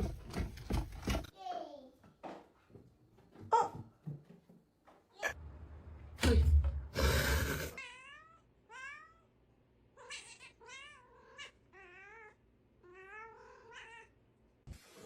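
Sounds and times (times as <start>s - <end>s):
cat meowing: 10.0s - 14.1s.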